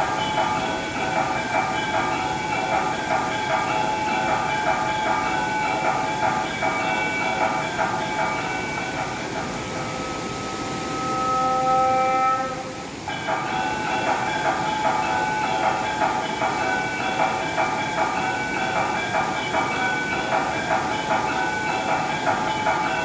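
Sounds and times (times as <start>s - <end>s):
bells ringing rhythmically: 0.0s - 10.8s, 13.0s - 23.0s
held horn-like note: 9.8s - 13.1s.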